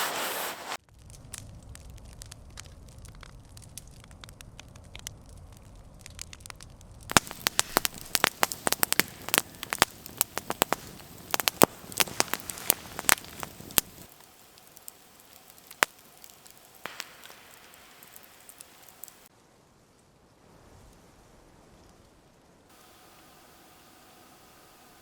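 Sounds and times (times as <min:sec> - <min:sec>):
campfire crackling and popping: 0:00.0 - 0:19.5.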